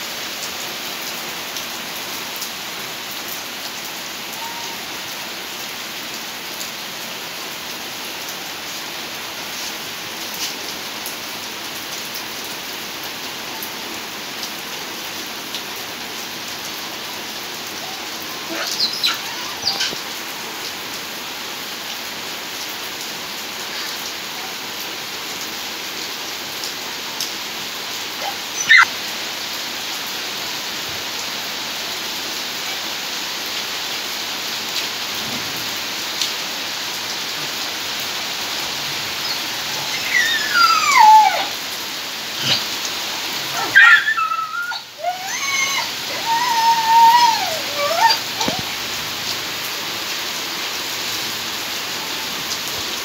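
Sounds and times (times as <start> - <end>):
rain on wet pavement: 0.0 - 53.0
monkey calling: 4.3 - 5.4, 17.6 - 20.8, 28.1 - 28.9, 38.8 - 41.7, 42.3 - 48.8.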